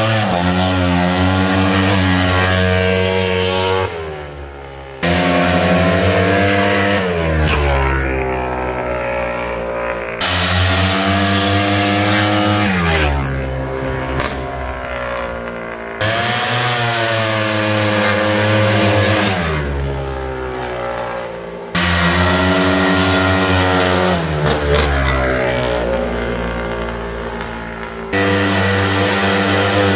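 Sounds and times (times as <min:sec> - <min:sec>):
dirt bike engine revving: 0:00.0 - 0:29.9.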